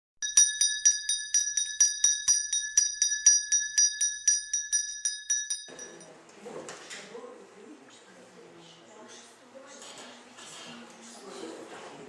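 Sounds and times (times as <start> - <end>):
small bell ringing rapidly: 0.2 - 6.1.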